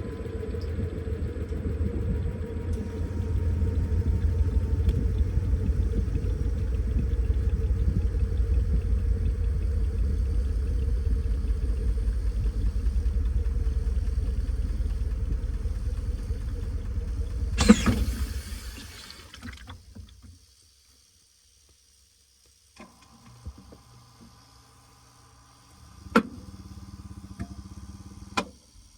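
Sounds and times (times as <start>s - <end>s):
washing machine rumbling: 0.0s - 19.9s
faint steady hum: 0.0s - 28.9s.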